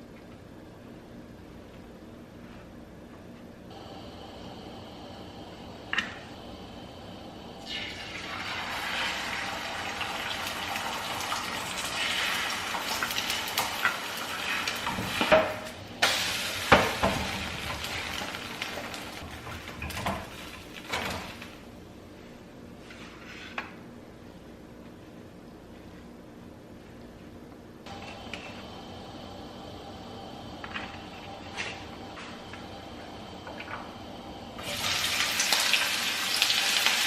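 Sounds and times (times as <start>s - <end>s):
food sizzling in a frying pan: 7.6s - 21.5s, 34.6s - 37.0s.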